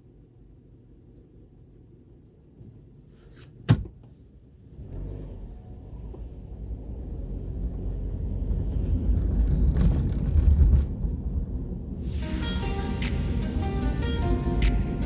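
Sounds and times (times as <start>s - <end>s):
electric train rumbling past: 8.4s - 15.0s
music: 12.0s - 15.0s.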